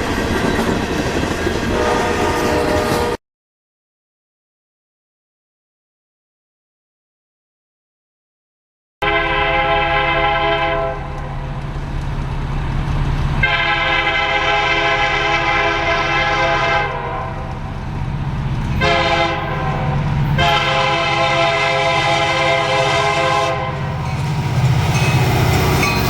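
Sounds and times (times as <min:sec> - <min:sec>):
moving train rumble: 0:00.0 - 0:03.2, 0:09.0 - 0:26.0
train horn blasts: 0:01.7 - 0:03.2, 0:09.0 - 0:11.3, 0:13.4 - 0:17.6, 0:18.8 - 0:23.9.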